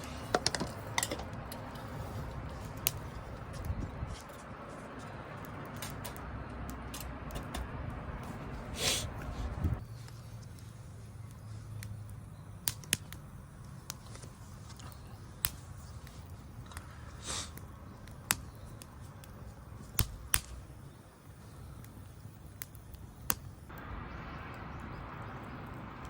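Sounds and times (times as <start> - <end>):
wood fire crackling: 0.0 - 26.0
hiss: 8.7 - 9.2, 15.4 - 17.7.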